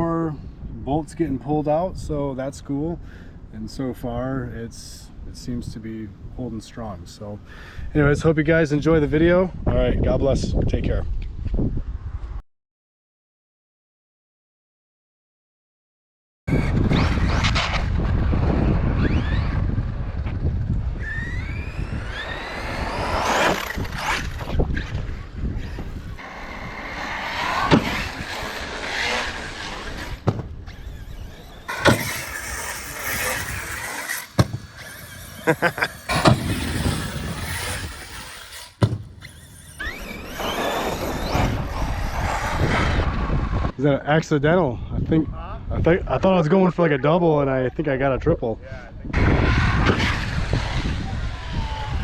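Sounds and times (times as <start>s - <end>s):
electric motor whining: 16.5s - 43.7s
toy truck landing thumps: 30.1s - 31.1s, 31.7s - 35.3s, 35.9s - 40.5s.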